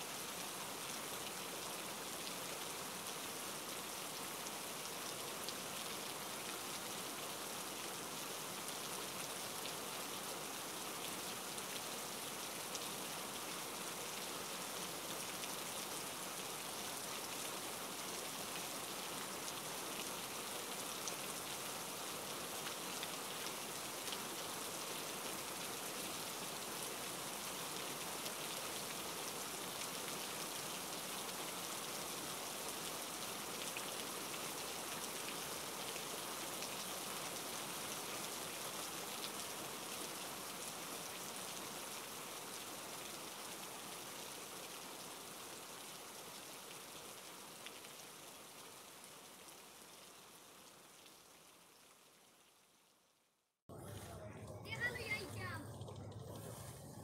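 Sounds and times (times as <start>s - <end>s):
ticks of raindrops: 1.2s - 53.0s
rain hissing: 53.7s - 57.0s.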